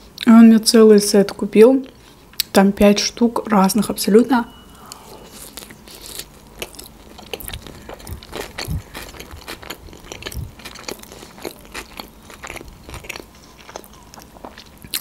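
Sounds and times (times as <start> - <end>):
chewing crunchy fried food: 5.0 - 15.0.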